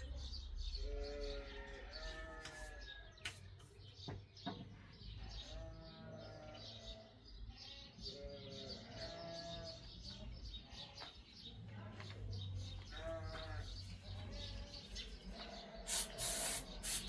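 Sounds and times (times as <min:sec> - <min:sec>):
birds chirping: 0:00.0 - 0:17.0
livestock bleating: 0:05.2 - 0:09.9, 0:12.9 - 0:14.7.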